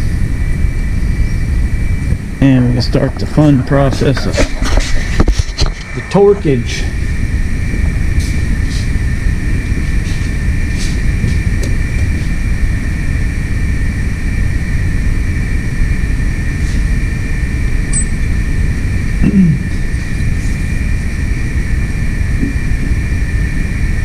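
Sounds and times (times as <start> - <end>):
steady loud rumble: 0.0 - 24.0
high-pitched tones: 17.9 - 18.3.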